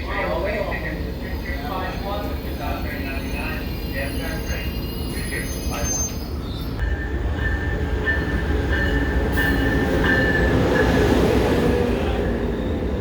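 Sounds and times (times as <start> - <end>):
train rolling with low rumble: 0.0 - 13.0
high wheel squeal: 0.7 - 6.8.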